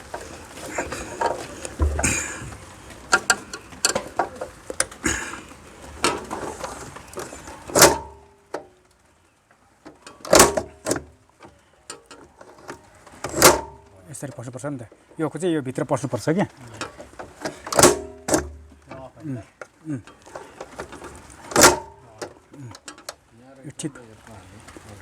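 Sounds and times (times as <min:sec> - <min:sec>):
small clicks of metal parts: 0:00.0 - 0:05.3, 0:06.0 - 0:09.0, 0:09.8 - 0:15.0, 0:16.7 - 0:23.3
loud ringing metallic knocks: 0:01.8 - 0:02.6.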